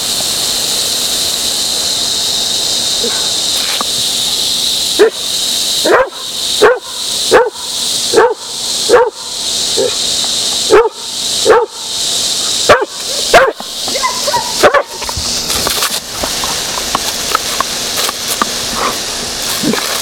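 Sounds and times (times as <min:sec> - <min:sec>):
garden hose spraying: 0:00.0 - 0:20.0
dog barking: 0:05.0 - 0:05.2, 0:05.8 - 0:10.0, 0:10.7 - 0:11.8, 0:12.6 - 0:15.0.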